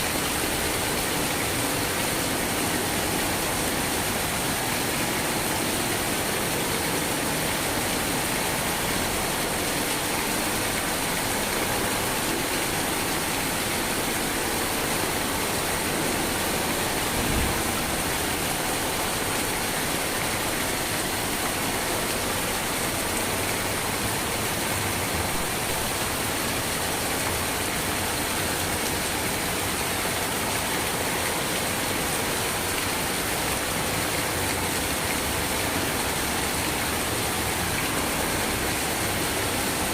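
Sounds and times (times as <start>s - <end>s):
steady rain: 0.0s - 39.9s
low thump: 17.1s - 17.8s.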